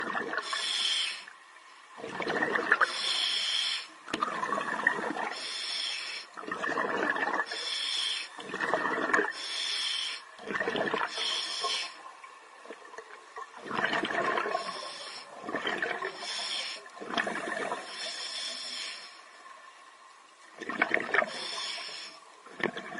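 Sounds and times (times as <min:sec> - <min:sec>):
exhaled bubbles underwater: 0:00.0 - 0:03.2, 0:04.0 - 0:09.6, 0:10.2 - 0:18.8, 0:20.5 - 0:22.9
regulator hissing inhale: 0:00.4 - 0:01.3, 0:02.9 - 0:04.0, 0:05.3 - 0:06.4, 0:07.5 - 0:08.4, 0:09.3 - 0:10.3, 0:11.1 - 0:12.1, 0:14.5 - 0:15.4, 0:16.1 - 0:19.3, 0:21.3 - 0:22.3.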